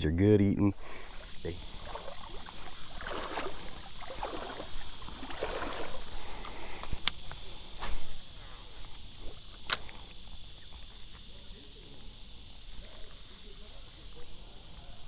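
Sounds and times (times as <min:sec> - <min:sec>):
insect buzz: 0:00.0 - 0:15.0
splashing and rustling: 0:00.8 - 0:11.4
sharp clicks: 0:06.8 - 0:07.4, 0:08.9 - 0:10.9.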